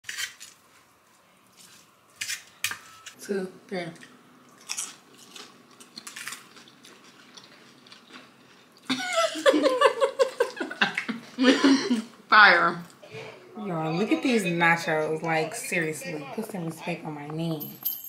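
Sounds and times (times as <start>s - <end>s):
chips crunching while chewed: 4.5s - 8.6s.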